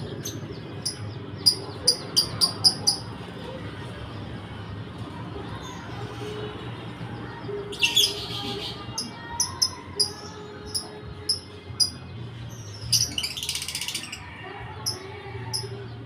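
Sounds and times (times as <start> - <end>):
lovebirds chirping: 0.0 - 3.1
lovebirds chattering: 0.0 - 3.3, 7.7 - 16.0.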